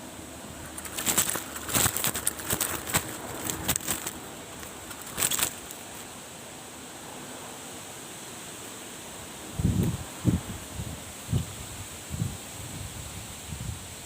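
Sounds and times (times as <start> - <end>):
crackling and rustling: 0.0 - 6.3.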